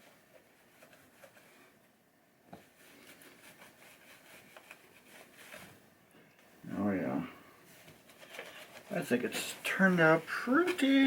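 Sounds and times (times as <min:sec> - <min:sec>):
cloth rubbing on wood: 0:02.6 - 0:05.9.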